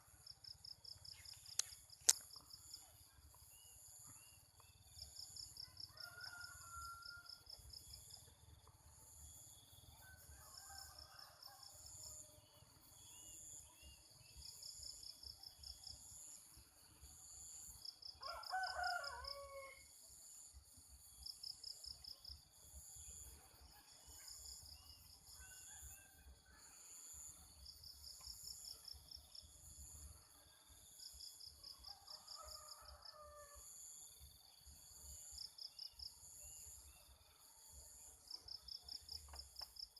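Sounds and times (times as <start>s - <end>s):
distant roosters crowing: 5.6s - 7.5s, 18.2s - 19.9s, 31.9s - 33.7s.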